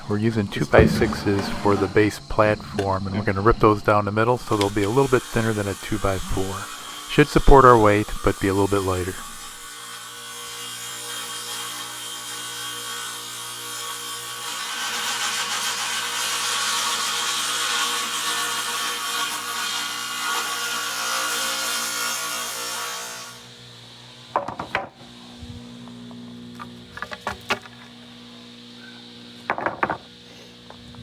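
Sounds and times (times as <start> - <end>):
spinning saw blade hum: 0.0 - 9.6
table saw cutting board: 0.4 - 2.9, 4.4 - 25.2.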